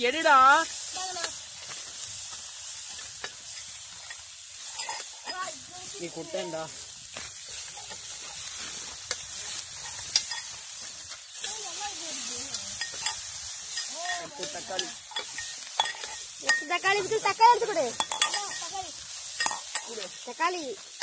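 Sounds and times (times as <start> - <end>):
chicken sizzling in pan: 0.0 - 21.0
steel ladle scraping and knocking pan: 2.8 - 5.5, 7.4 - 11.7, 12.4 - 20.1.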